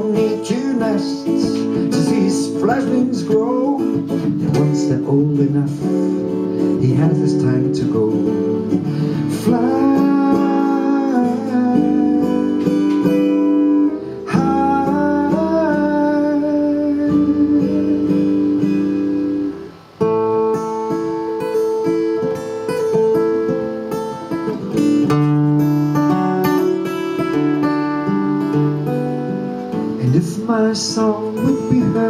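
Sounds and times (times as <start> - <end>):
person singing long notes: 0.0 - 19.8
acoustic guitar: 0.0 - 32.0.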